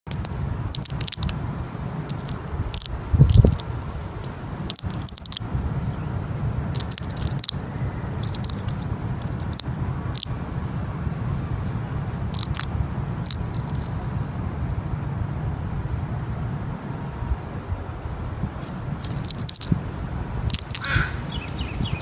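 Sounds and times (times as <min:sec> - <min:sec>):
bird tapping on a shell: 0:00.1 - 0:01.4, 0:02.0 - 0:03.7, 0:04.6 - 0:05.5, 0:06.7 - 0:10.7, 0:12.3 - 0:14.1, 0:18.6 - 0:21.2
steady low rumble: 0:00.1 - 0:22.0
high bird calls sliding down: 0:06.7 - 0:10.3, 0:19.0 - 0:22.0.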